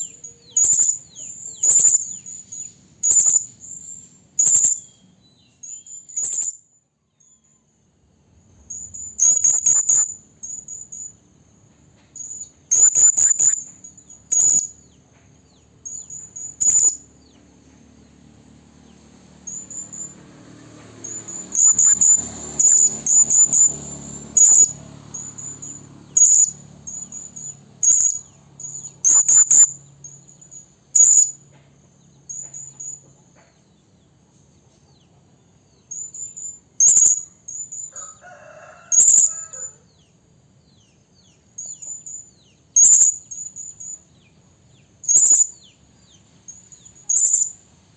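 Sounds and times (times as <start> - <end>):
parrot high piercing calls: 0.0 - 5.0, 5.6 - 6.6, 8.7 - 11.1, 12.2 - 14.8, 15.8 - 17.1, 21.0 - 31.4, 35.9 - 39.8, 41.6 - 44.0, 45.0 - 45.7, 46.7 - 47.6.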